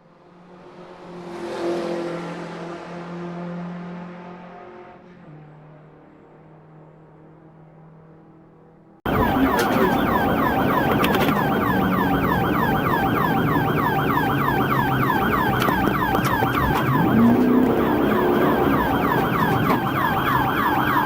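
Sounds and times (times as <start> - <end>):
car engine and road noise: 0.0 - 21.0
police siren yelping: 9.1 - 21.0.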